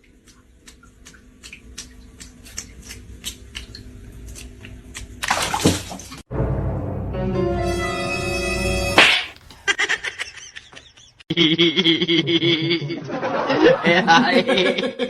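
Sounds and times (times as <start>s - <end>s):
water splashing and dripping: 0.0s - 6.3s
music: 6.3s - 9.0s.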